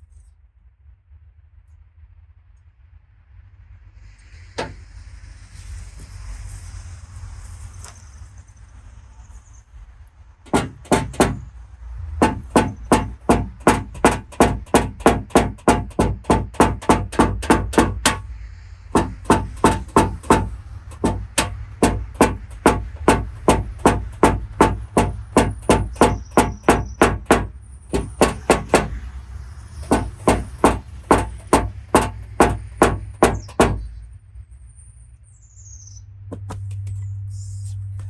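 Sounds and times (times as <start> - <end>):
light hammer taps on sheet metal: 19.0 - 29.0, 29.8 - 33.9.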